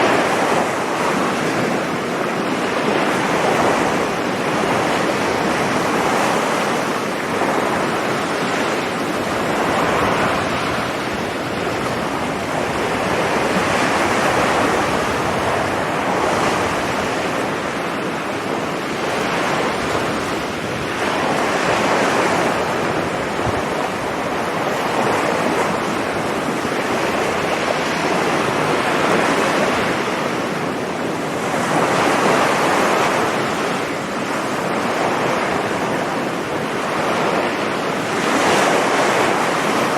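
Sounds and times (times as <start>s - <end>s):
sea waves breaking on beach: 0.0s - 39.9s
wind buffeting microphone: 0.0s - 39.9s.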